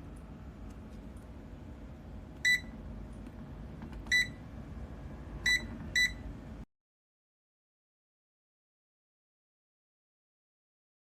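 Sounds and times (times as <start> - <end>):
steady low hum: 0.0 - 6.7
short electronic beeps: 2.4 - 2.7, 4.1 - 4.4, 5.5 - 6.2.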